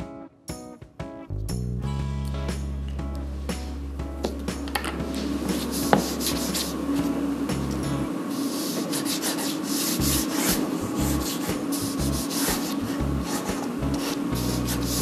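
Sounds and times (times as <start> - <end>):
pen scratching on paper: 8.3 - 15.0.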